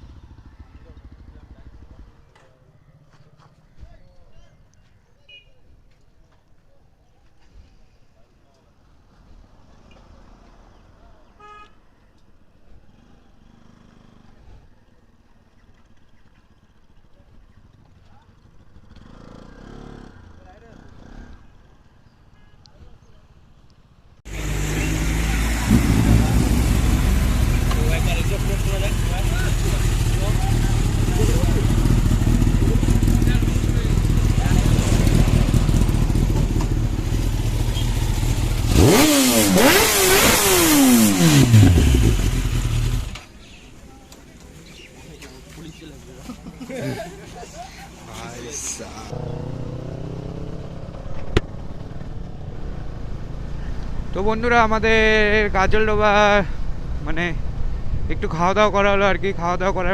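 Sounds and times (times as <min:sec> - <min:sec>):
faint vehicle engine idling: 0:00.0 - 0:05.4, 0:24.3 - 0:39.0, 0:41.4 - 0:49.4
outdoor background noise: 0:00.0 - 0:59.9.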